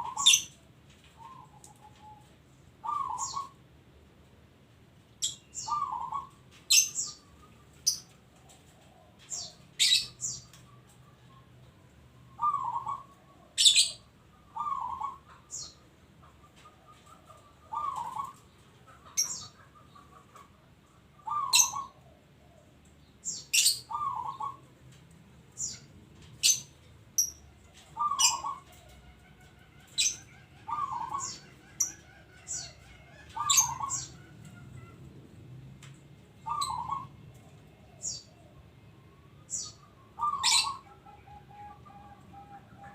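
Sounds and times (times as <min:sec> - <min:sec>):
dove cooing: 0:00.0 - 0:00.6, 0:01.2 - 0:03.6, 0:05.6 - 0:10.3, 0:12.4 - 0:22.8, 0:23.5 - 0:24.7, 0:27.5 - 0:35.2, 0:36.3 - 0:42.9.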